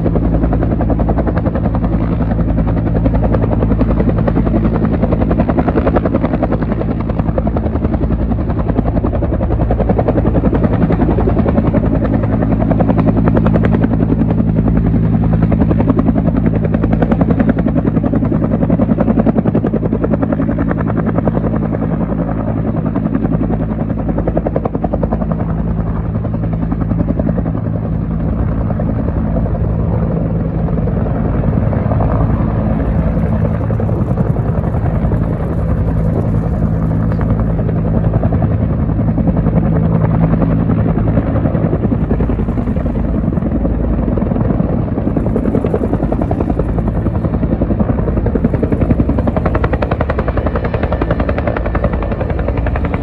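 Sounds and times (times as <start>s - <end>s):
helicopter rotor beat: 0.0s - 53.0s.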